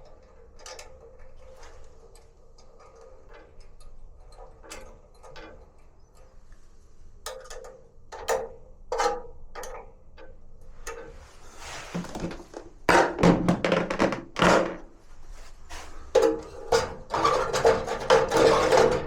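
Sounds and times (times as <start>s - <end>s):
louder knocks: 12.0s - 14.9s.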